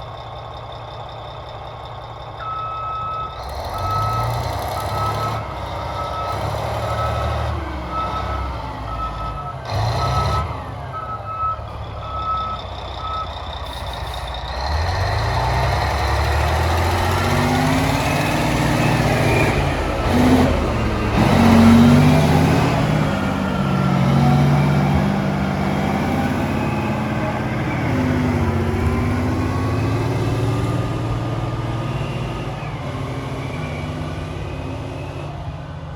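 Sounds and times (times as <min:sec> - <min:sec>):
diesel truck engine revving: 0:00.0 - 0:35.9
reversing alarm beeping: 0:02.4 - 0:13.9.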